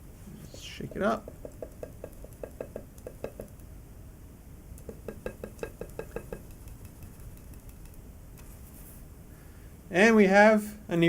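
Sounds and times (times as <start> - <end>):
shaken container knocking: 0.5 - 3.6, 4.9 - 7.9.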